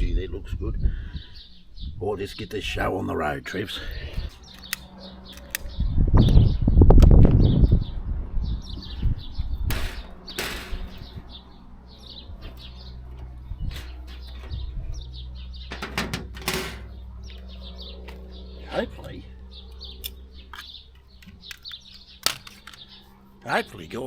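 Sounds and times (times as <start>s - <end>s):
small birds chirping: 0.4s - 24.0s
steady low hum: 2.6s - 24.0s
scraping sliding handling noises: 4.2s - 5.6s, 9.7s - 15.0s, 15.7s - 17.0s, 20.5s - 23.1s.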